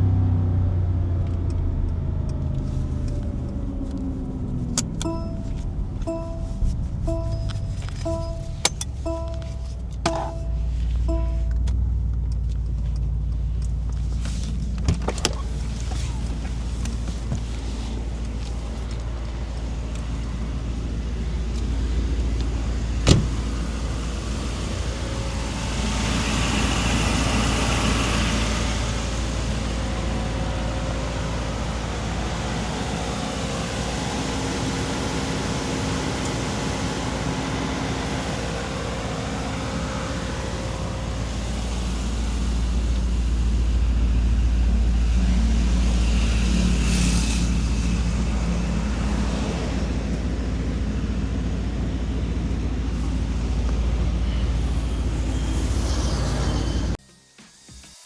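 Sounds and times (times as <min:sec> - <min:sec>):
car engine rumbling: 0:00.0 - 0:57.0
sharp exhaust crack: 0:02.6 - 0:12.5.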